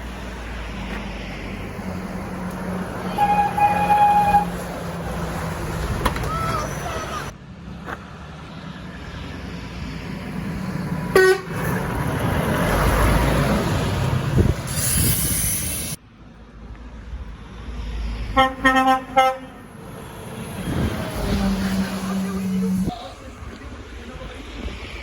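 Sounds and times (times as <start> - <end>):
truck passing by: 0.0 - 16.6, 17.3 - 25.0
truck horn blasts: 3.1 - 4.7, 11.1 - 11.6, 18.4 - 19.6.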